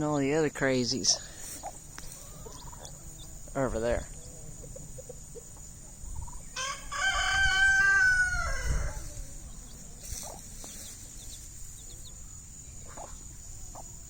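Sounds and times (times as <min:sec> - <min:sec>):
rooster crowing: 0:06.5 - 0:09.7.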